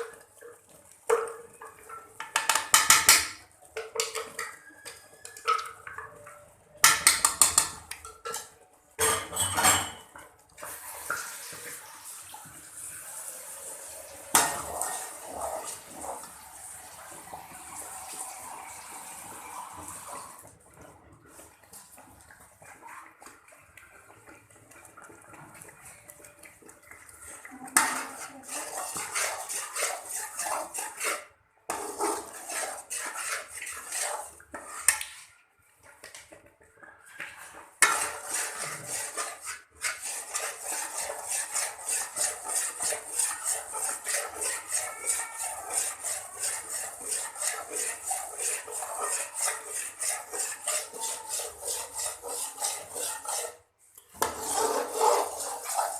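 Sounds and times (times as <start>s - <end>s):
metal spoon scraping pan: 0.0s - 10.8s, 14.1s - 16.4s, 26.2s - 35.3s, 37.4s - 55.9s.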